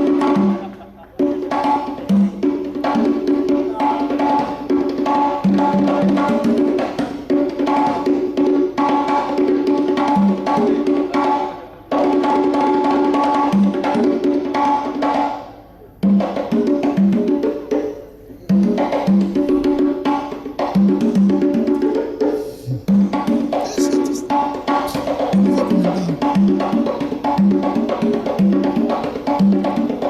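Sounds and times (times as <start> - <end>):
fast drumming: 22.3 - 30.0.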